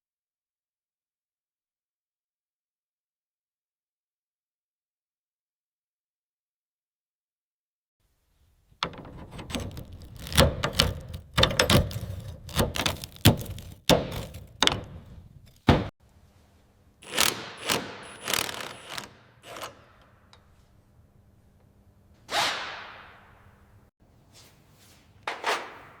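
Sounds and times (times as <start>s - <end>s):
knocks and clunks of metal parts: 8.8s - 15.9s.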